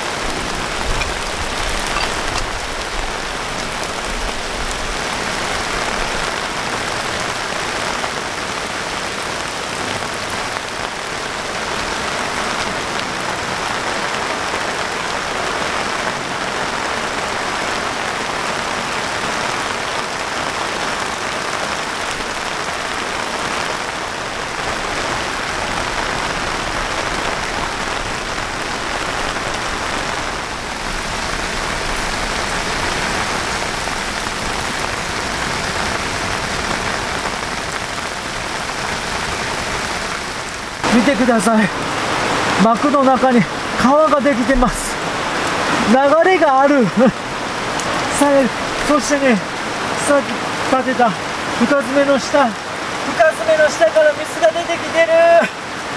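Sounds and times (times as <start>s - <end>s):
heavy rain pouring: 0.0s - 55.9s.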